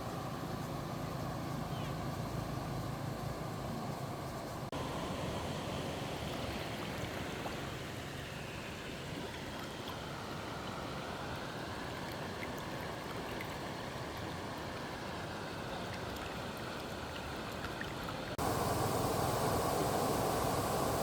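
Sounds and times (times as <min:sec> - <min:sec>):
fast-flowing stream water rushing: 0:18.3 - 0:21.0.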